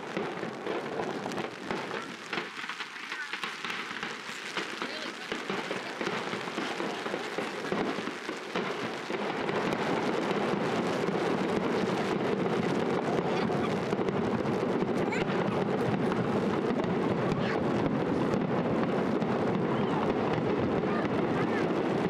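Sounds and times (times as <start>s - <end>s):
heavy rain falling: 4.1s - 7.9s.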